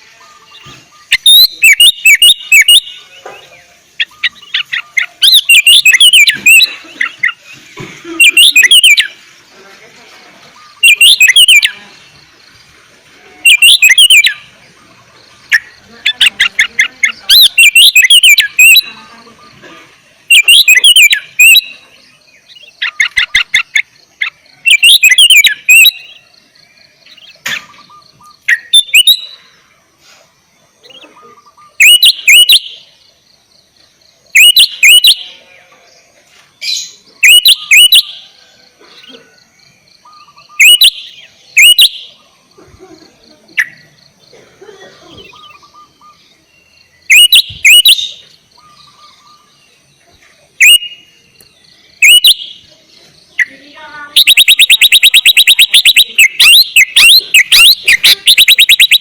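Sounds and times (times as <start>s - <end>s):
rapid rattling bird trills: 0.0s - 9.5s, 10.2s - 29.7s, 30.8s - 33.2s, 36.9s - 49.9s, 51.9s - 59.0s
bulbul singing bubbly phrases: 53.2s - 59.0s.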